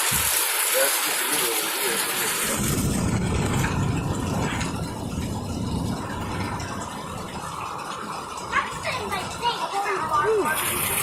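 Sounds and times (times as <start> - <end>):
rain: 0.0 - 11.0
rolling thunder: 2.4 - 11.0.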